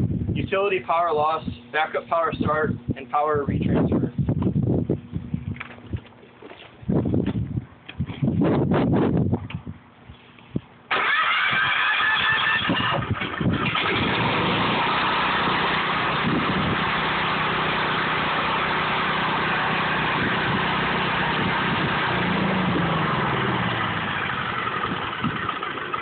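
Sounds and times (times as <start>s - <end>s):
portable generator engine running: 10.9s - 26.0s.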